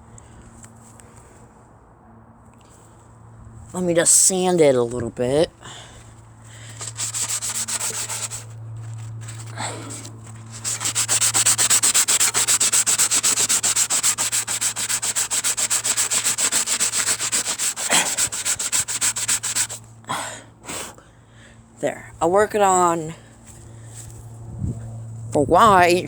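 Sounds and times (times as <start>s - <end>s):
sandpaper rubbing on metal: 6.7s - 19.8s.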